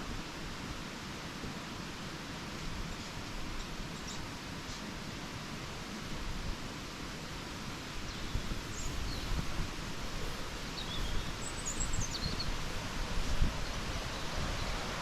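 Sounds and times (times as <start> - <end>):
wind rushing hiss: 6.1 - 15.0
wild bird chirping: 8.1 - 9.4, 10.2 - 12.6
low wind buffeting: 8.1 - 15.0.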